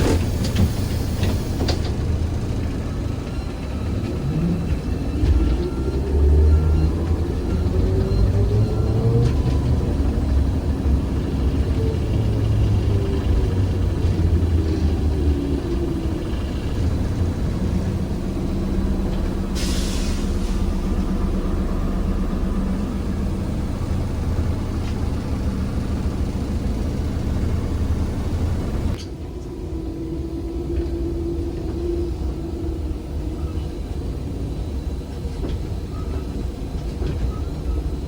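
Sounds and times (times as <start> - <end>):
trolleybus running rumble: 0.0 - 38.0
compressed air hiss: 19.6 - 20.7.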